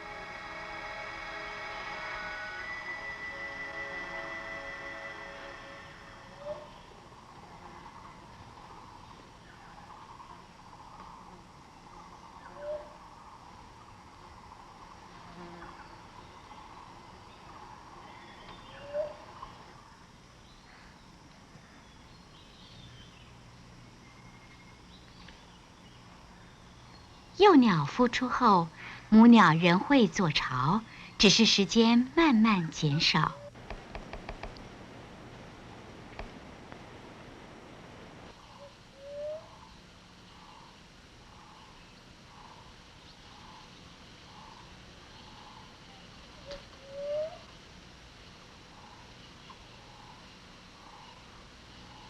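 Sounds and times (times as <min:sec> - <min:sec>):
quiet forest background: 0:00.0 - 0:52.0
bird calls and chirps: 0:15.7 - 0:19.6.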